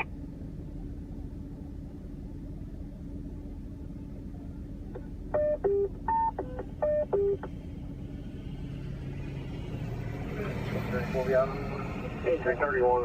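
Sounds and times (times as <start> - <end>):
short electronic beeps: 5.4 - 7.5
radio static hum and hiss: 12.1 - 13.0.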